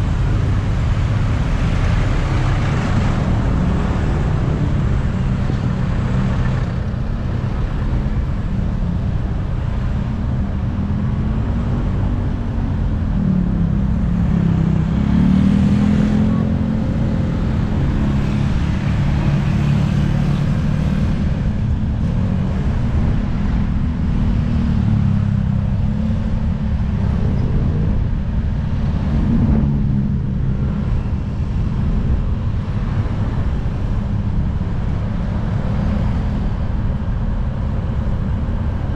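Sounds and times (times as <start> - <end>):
car engines passing: 0.0 - 38.9
motorcycle engines passing: 11.4 - 38.9.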